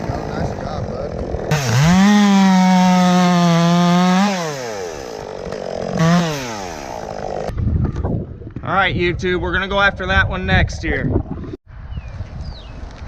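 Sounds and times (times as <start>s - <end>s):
chainsaw revving and idling: 0.0s - 7.5s.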